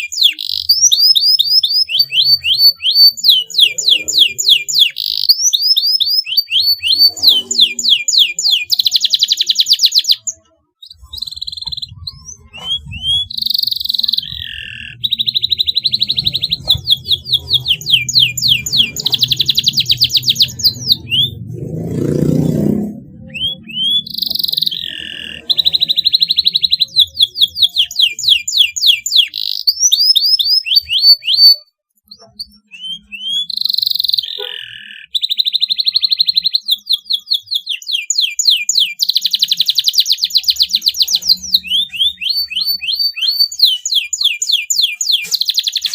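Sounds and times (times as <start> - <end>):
canary singing trills: 0.0 - 45.9
low rumble: 20.4 - 24.0.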